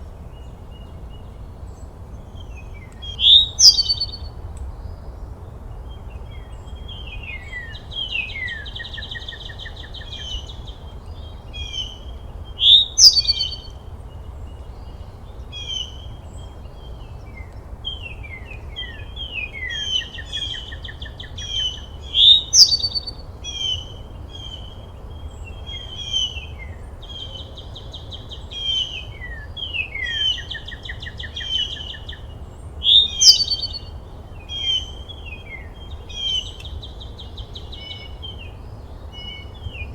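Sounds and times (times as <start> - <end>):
birds chirping and singing: 2.6 - 4.2, 6.4 - 13.7, 18.8 - 39.9
sharp bird call: 3.2 - 4.2, 32.9 - 33.8.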